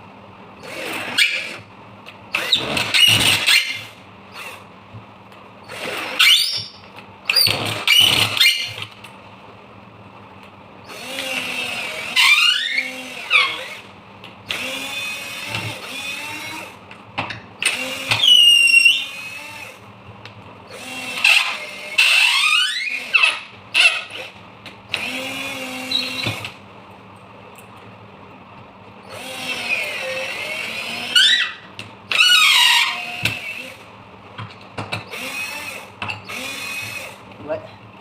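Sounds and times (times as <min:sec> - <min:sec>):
cordless drill motor whine: 0:05.7 - 0:08.9, 0:10.9 - 0:13.9, 0:14.5 - 0:16.8, 0:17.6 - 0:19.8, 0:20.7 - 0:26.6, 0:29.0 - 0:33.9, 0:35.1 - 0:37.2.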